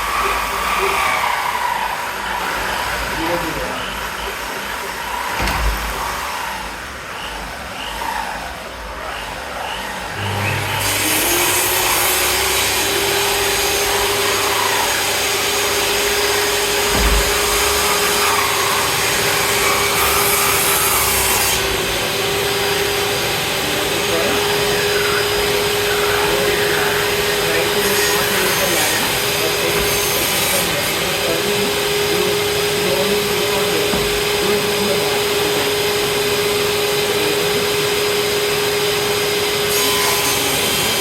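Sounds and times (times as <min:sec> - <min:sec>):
sawing and rubbing of wood: 0:00.0 - 0:41.0
power tool motor with high hiss: 0:09.2 - 0:41.0.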